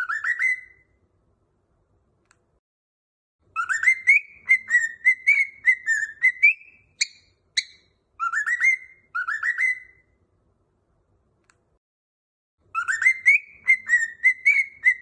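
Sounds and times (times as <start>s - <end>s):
cockatiel whistling: 0.0s - 0.9s, 3.5s - 10.1s, 12.7s - 15.0s.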